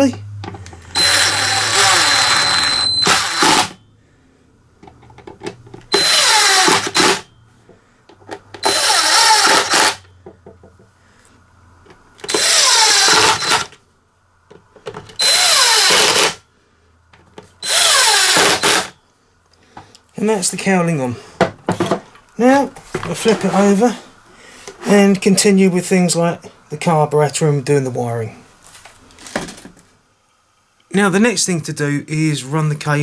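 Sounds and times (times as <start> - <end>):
cordless drill driving screws: 0.8 - 3.8, 5.9 - 7.3, 8.6 - 10.1, 12.2 - 13.8, 15.2 - 16.4, 17.6 - 19.0.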